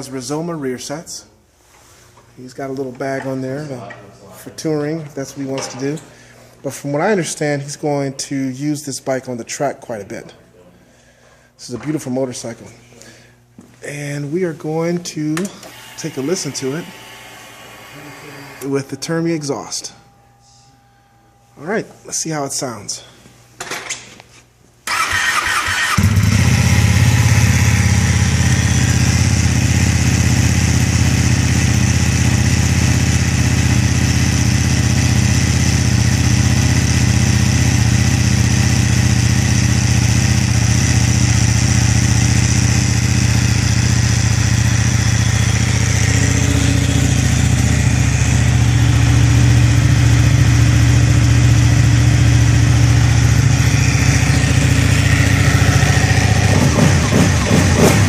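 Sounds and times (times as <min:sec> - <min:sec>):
motorcycle engine starting and idling: 0:24.9 - 0:58.0.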